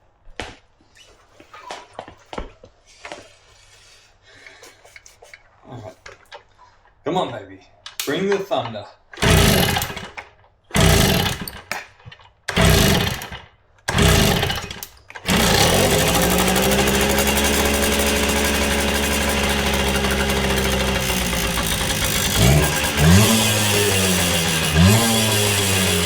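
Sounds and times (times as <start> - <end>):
two-stroke engine starting: 9.2 - 10.2, 10.8 - 11.8, 12.5 - 26.0.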